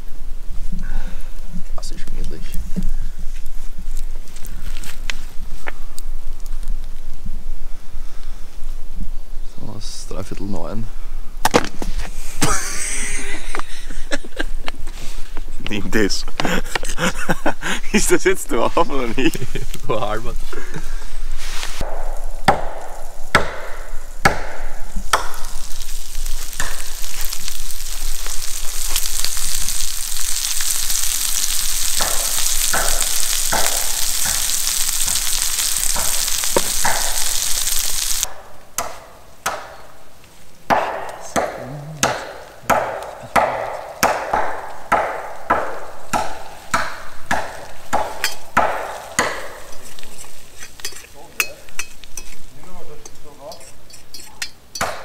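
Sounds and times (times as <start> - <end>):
food sizzling in a pan: 19.1 - 38.3, 45.4 - 54.3.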